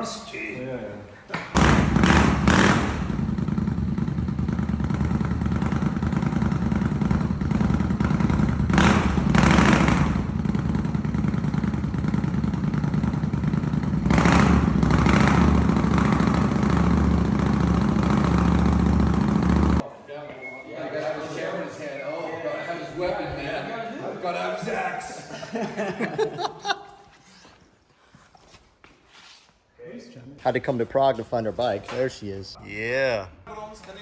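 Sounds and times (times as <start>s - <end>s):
motorcycle engine idling and revving: 1.6s - 19.8s.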